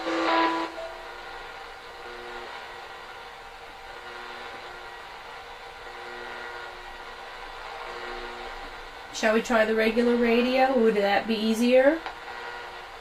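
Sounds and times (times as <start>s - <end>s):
radio static hiss: 0.0s - 3.3s.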